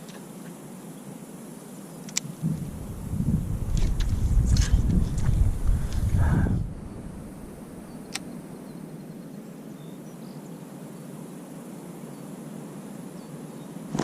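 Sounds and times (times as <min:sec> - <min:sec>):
steady outdoor hiss: 0:00.0 - 0:14.0
sharp click: 0:02.1 - 0:02.3.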